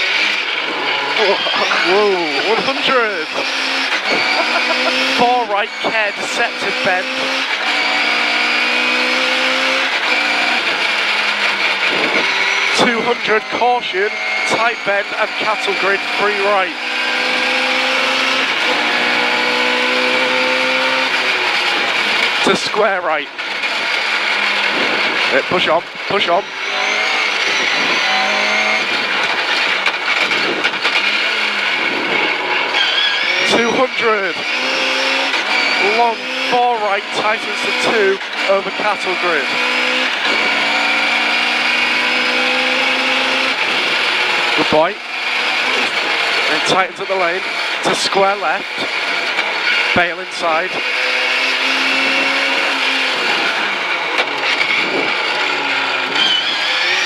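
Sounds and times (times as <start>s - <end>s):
car engine revving hard: 0.0s - 57.0s
road noise: 0.0s - 57.0s.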